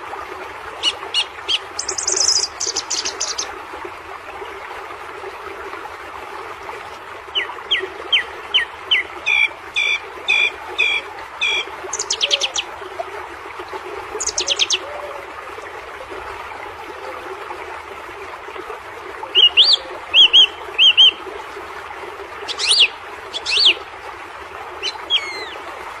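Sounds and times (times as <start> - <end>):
small birds chirping: 1.1 - 3.5, 9.3 - 12.6, 22.5 - 23.7.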